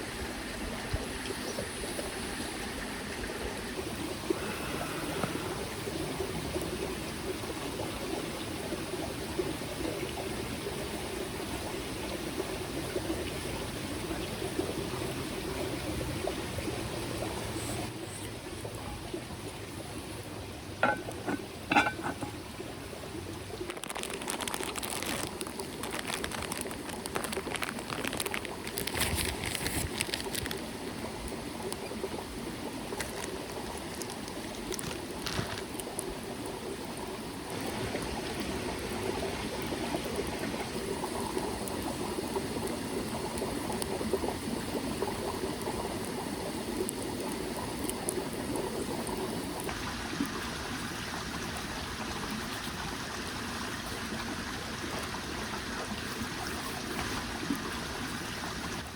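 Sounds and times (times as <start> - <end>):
stream trickling: 0.0 - 58.9
crackly clicking: 23.6 - 30.7.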